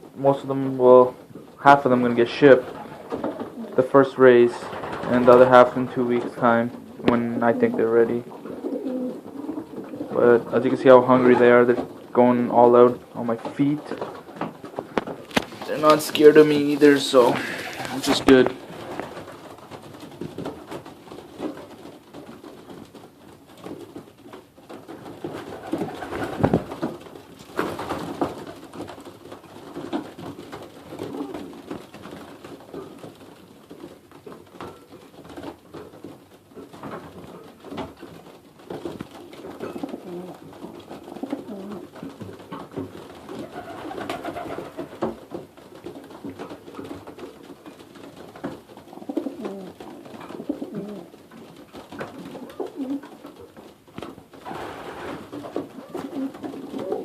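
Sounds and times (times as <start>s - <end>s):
pigeons cooing: 2.5s - 3.9s, 6.8s - 10.6s, 39.6s - 42.0s, 43.3s - 45.1s, 48.9s - 51.2s, 52.1s - 53.2s, 54.5s - 57.0s.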